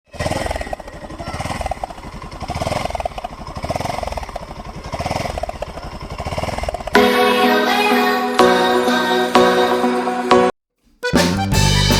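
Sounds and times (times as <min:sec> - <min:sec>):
motorcycle engine popping exhaust: 0:00.2 - 0:07.0.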